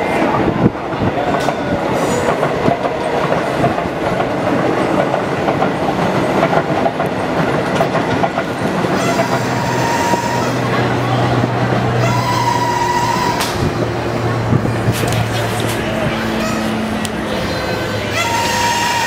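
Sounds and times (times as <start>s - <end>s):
train rumbling on rails: 0.0s - 19.0s
wheels clattering over track: 1.2s - 11.9s.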